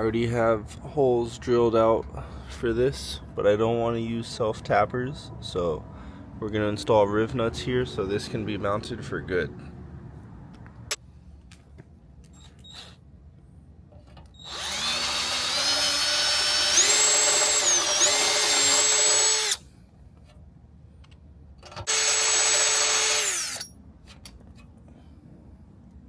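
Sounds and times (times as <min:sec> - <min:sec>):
electric drill running: 0:14.4 - 0:19.6, 0:21.9 - 0:23.7.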